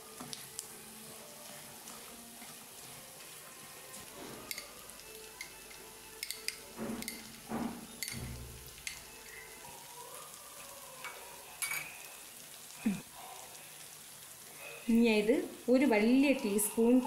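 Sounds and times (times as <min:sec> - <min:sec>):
vegetables sizzling in oil: 0:00.0 - 0:17.0
stirring knocks and scrapes: 0:01.5 - 0:04.8, 0:06.2 - 0:09.0.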